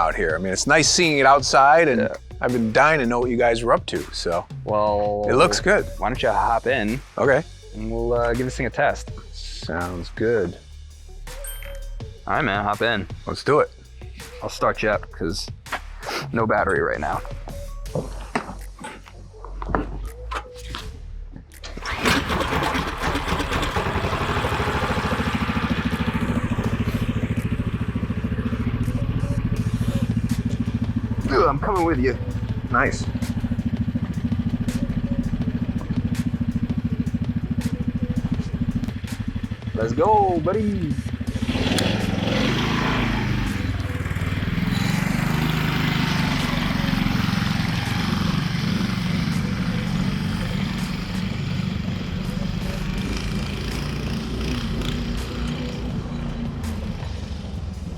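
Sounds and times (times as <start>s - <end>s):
engine pull-start: 21.5s - 28.3s, 41.2s - 49.3s
kart engine idling: 21.7s - 57.8s.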